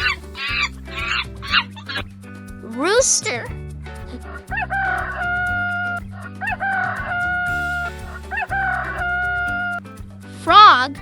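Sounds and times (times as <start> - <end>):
children's music with a beat: 0.0 - 11.0
rooster crowing: 4.5 - 9.7.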